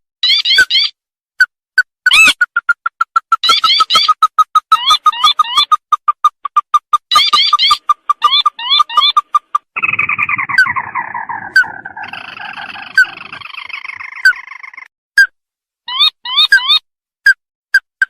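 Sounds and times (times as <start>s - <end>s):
crake calls: 2.1s - 14.9s.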